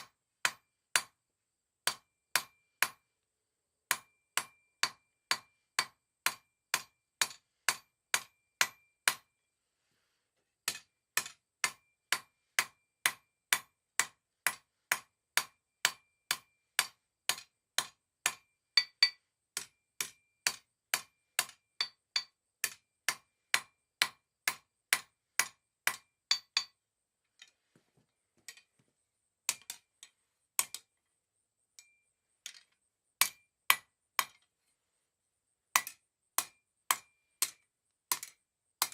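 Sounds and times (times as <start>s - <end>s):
hammer striking steel on anvil: 0.4s - 1.2s, 1.8s - 3.0s, 3.9s - 9.3s, 10.6s - 26.8s, 29.5s - 30.8s, 31.8s - 32.6s, 33.2s - 34.4s, 35.7s - 38.9s.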